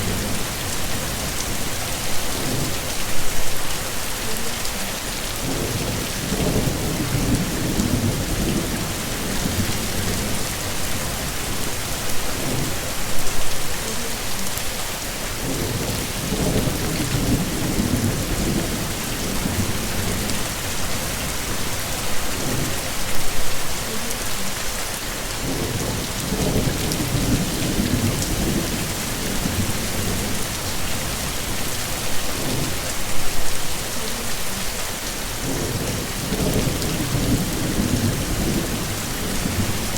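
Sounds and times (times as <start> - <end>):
heavy rain hissing: 0.0 - 39.9
low rolling thunder: 5.4 - 11.3, 15.4 - 21.7, 25.4 - 31.8, 35.4 - 39.9.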